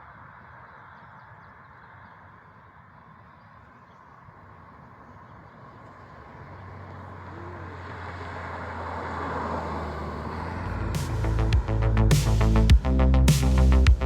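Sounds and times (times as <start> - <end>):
car passing: 4.2 - 12.7
steady low hum: 10.6 - 14.0
electronic dance music: 10.9 - 14.0.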